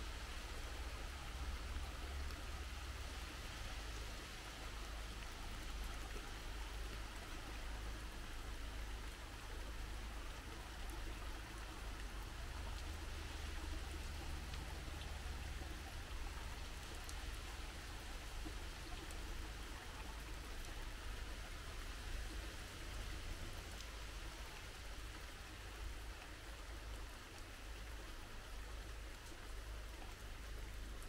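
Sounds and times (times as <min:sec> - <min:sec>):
rain pattering on leaves: 0:00.0 - 0:31.0.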